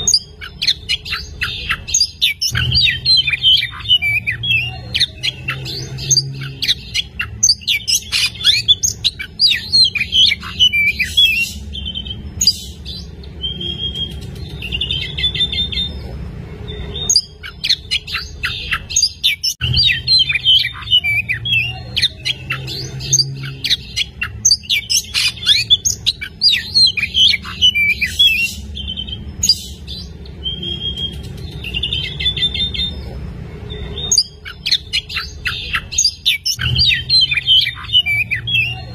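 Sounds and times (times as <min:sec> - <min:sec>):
songbird chirps whistles and trills: 0:13.4 - 0:16.0.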